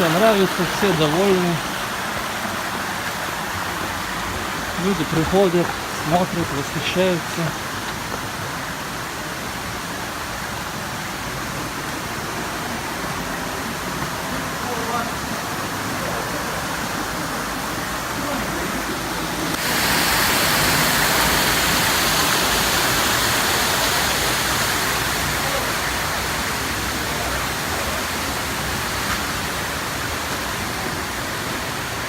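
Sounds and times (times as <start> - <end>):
waterfall roaring: 0.0 - 32.0.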